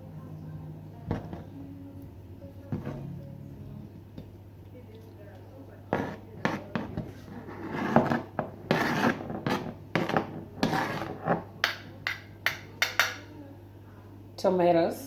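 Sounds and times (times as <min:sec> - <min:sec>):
faint steady hum: 0:00.0 - 0:15.0
utensils scraping wood and dishes: 0:05.8 - 0:11.8.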